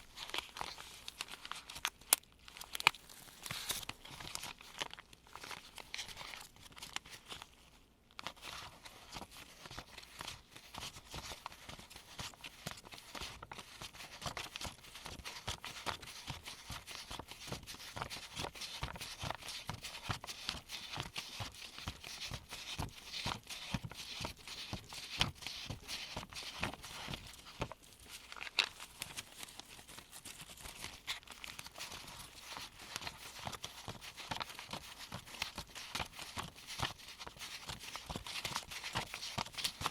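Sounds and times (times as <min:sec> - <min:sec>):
paper bills rustling: 0:00.0 - 0:07.6, 0:08.2 - 0:39.9.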